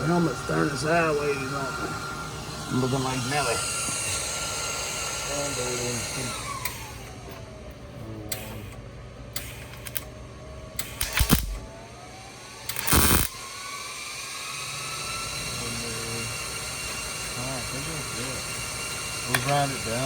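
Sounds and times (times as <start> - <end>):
welding crackles on sheet metal: 12.8 - 13.4.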